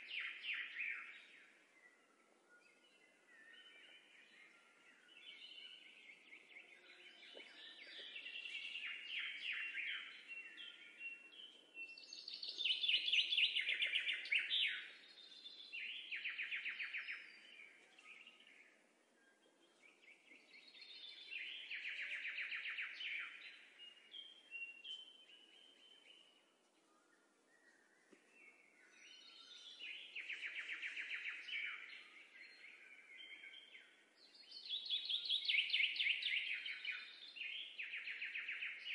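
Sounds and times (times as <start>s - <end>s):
songbird singing chirping trills: 0.0s - 38.9s.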